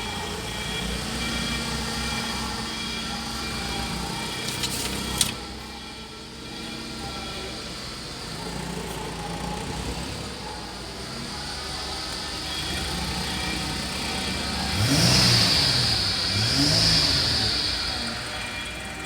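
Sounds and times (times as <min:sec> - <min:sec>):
car engine idling and revving: 0:00.0 - 0:19.0
engine hiss: 0:00.0 - 0:19.0.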